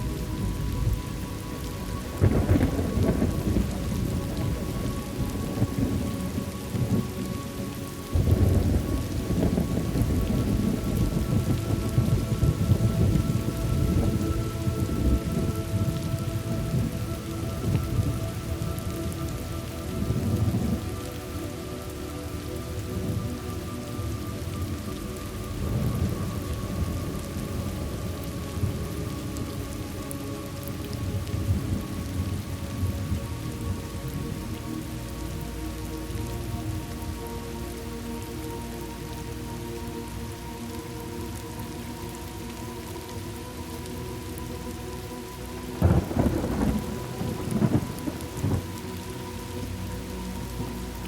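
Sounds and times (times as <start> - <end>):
steady rain falling: 0.0 - 51.0
low rolling thunder: 2.1 - 7.3, 8.1 - 19.2, 19.8 - 21.0, 25.6 - 29.0, 45.8 - 49.1.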